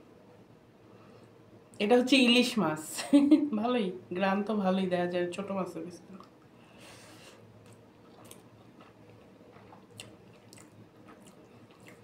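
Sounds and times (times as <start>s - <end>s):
chewing with wet mouth clicks: 7.6s - 12.0s.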